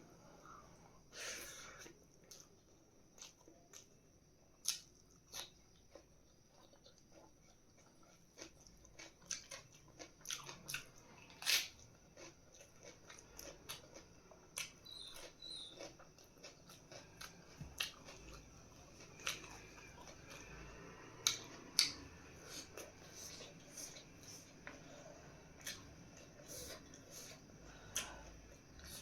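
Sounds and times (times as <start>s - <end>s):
food crunches and mouth clicks: 4.6s - 24.8s
chewing and biting food: 4.6s - 29.0s.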